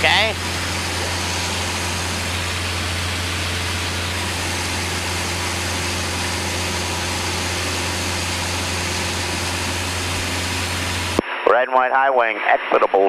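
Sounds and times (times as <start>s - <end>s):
propeller plane engine drone: 0.0s - 11.2s.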